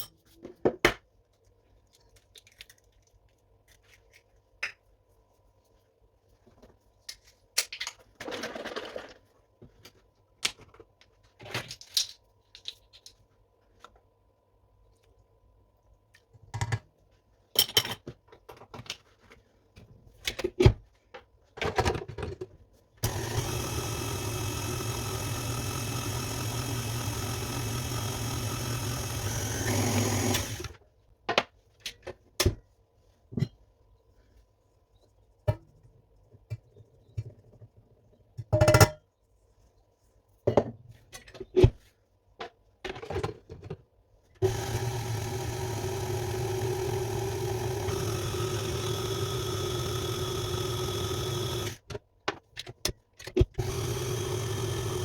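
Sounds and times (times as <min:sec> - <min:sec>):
electric kitchen mixer running: 0:23.0 - 0:30.8, 0:44.4 - 0:51.8, 0:53.6 - 0:55.0.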